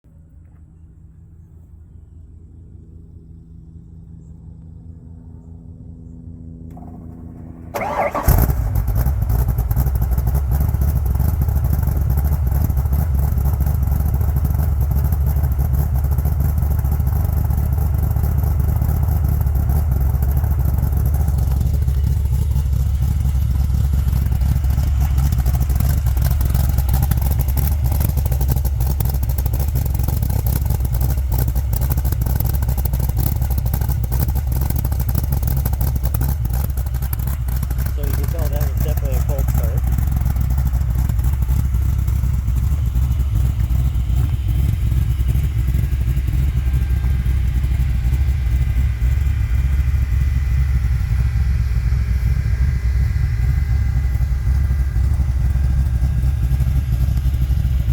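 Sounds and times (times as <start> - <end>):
car engine idling: 0.1 - 57.9.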